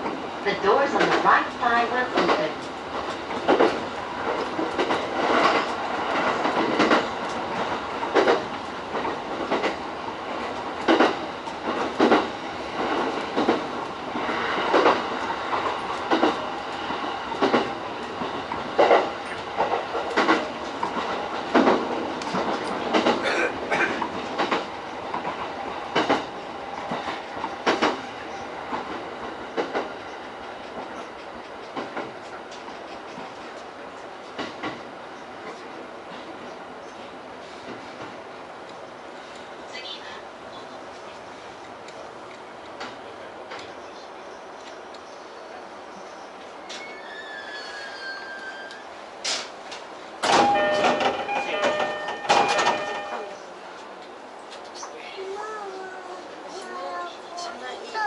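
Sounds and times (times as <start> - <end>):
wheels clacking over rail joints: 0.0 - 9.8, 10.4 - 33.6, 49.2 - 55.0
electric train running: 50.2 - 53.4.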